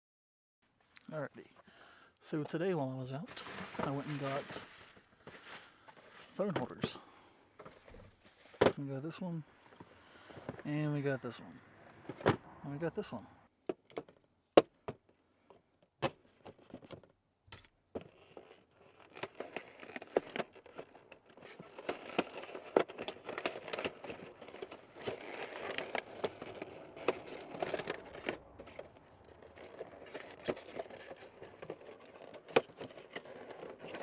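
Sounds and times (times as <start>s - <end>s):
plastic packaging crinkling: 3.3s - 6.8s, 18.4s - 34.0s.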